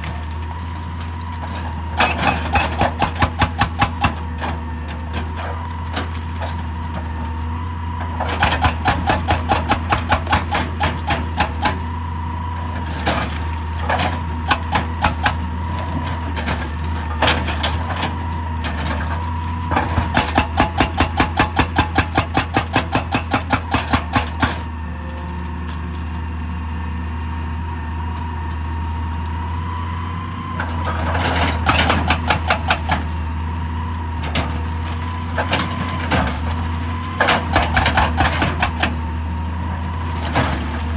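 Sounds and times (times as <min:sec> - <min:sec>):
diesel engine running: 0:00.0 - 0:40.9
hydraulic rock breaker hammering: 0:01.9 - 0:04.3, 0:08.2 - 0:11.9, 0:13.0 - 0:15.5, 0:19.7 - 0:24.7, 0:31.2 - 0:33.2, 0:35.3 - 0:39.0.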